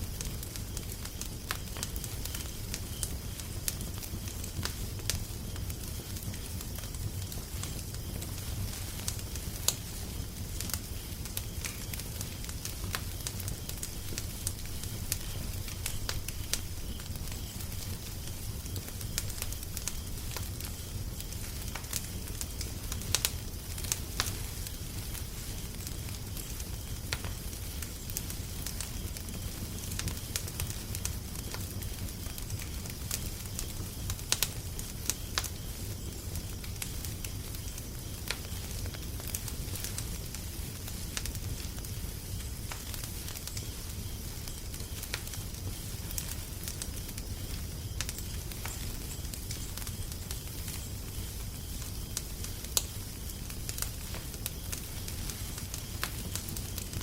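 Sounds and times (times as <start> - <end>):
low rumble and hiss: 0.0 - 57.0
wood fire crackling: 0.0 - 57.0.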